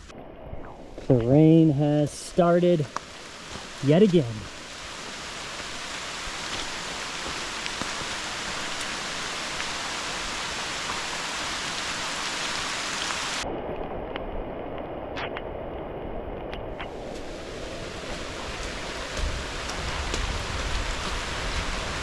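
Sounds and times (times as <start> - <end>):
rain hissing: 0.0 - 22.0
raindrop ticks: 1.0 - 4.6, 6.4 - 9.8, 13.6 - 17.3, 18.1 - 21.7.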